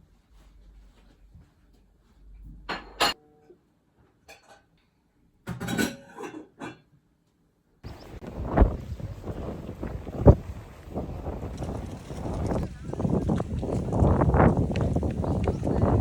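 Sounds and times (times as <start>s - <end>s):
wind noise on microphone: 7.8s - 16.0s.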